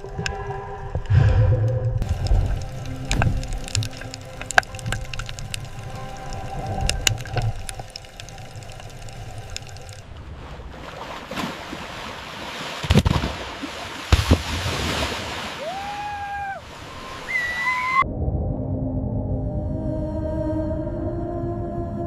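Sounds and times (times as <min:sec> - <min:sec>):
water rushing: 0:02.0 - 0:18.0.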